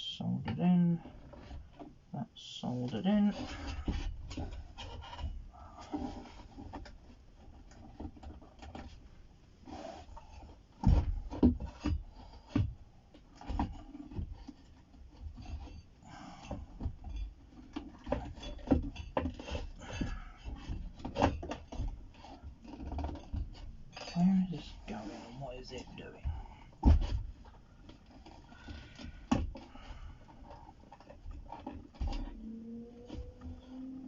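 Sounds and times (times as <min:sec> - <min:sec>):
hands rubbing and scraping: 0:24.0 - 0:26.2.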